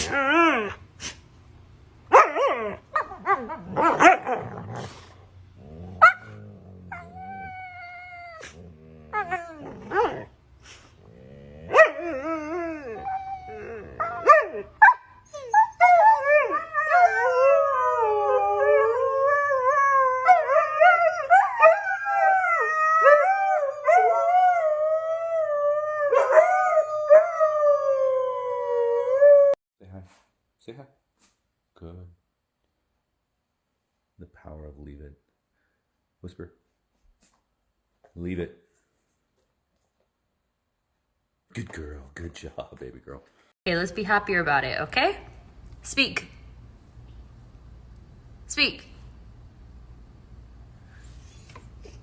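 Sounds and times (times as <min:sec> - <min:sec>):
dog barking and yelping: 0:02.1 - 0:05.0, 0:06.0 - 0:10.3, 0:11.6 - 0:19.0, 0:19.6 - 0:24.6, 0:26.1 - 0:27.4
dog howling: 0:06.0 - 0:10.3, 0:11.2 - 0:29.6.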